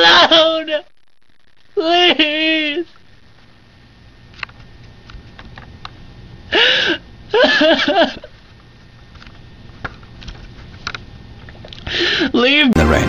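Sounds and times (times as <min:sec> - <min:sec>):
person sobbing: 0:00.0 - 0:00.9, 0:01.8 - 0:02.9, 0:06.5 - 0:08.2.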